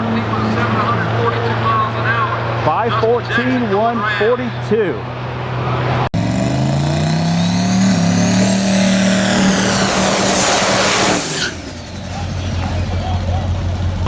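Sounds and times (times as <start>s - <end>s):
diesel truck engine accelerating: 0.0s - 3.6s, 4.5s - 14.0s
turbo whine: 6.2s - 13.0s.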